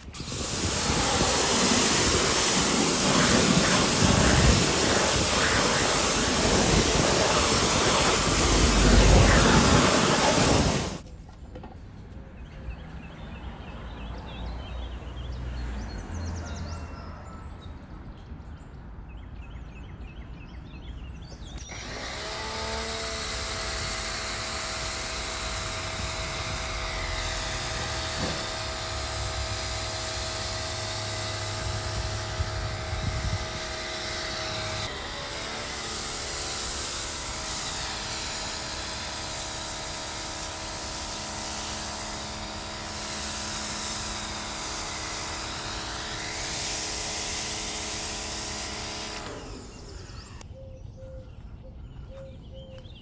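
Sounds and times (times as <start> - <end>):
power tool motor whining: 0.0 - 11.0, 21.6 - 50.4.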